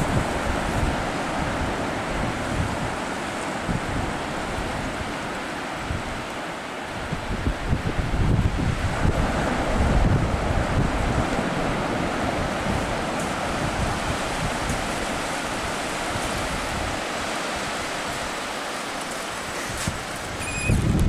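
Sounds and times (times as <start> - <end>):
wind buffeting microphone: 0.0 - 6.3, 6.9 - 18.4, 19.3 - 21.0
waves breaking on a sandy beach: 0.0 - 21.0.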